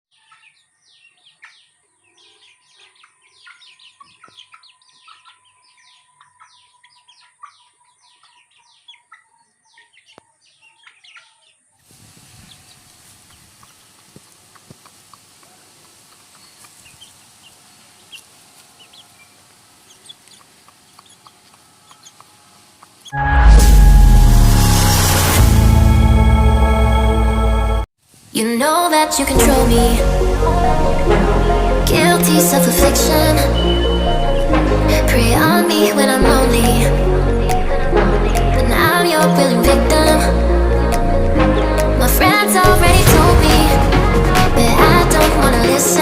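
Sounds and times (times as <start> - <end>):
chicks peeping: 0.1 - 11.8, 15.4 - 23.1
faint steady hiss: 11.8 - 22.8, 28.0 - 29.4.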